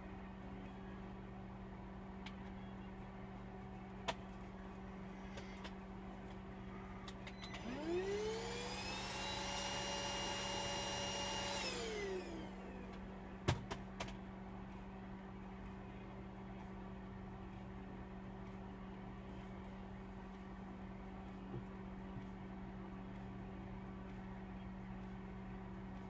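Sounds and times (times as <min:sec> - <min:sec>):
small electric motor whirring: 0:07.4 - 0:12.9.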